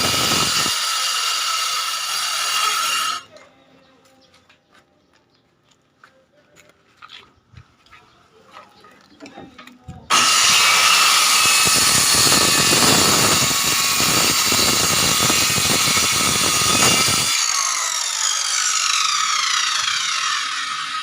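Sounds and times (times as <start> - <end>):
circular saw cutting wood: 0.0 - 3.3, 10.1 - 21.0
saw blade winding down: 0.0 - 3.3, 10.1 - 21.0.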